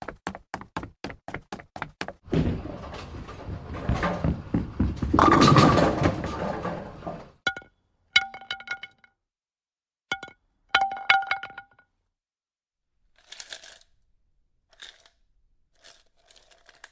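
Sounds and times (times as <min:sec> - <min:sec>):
quick knocks: 0:00.0 - 0:07.3
dense noisy clattering: 0:02.3 - 0:07.4.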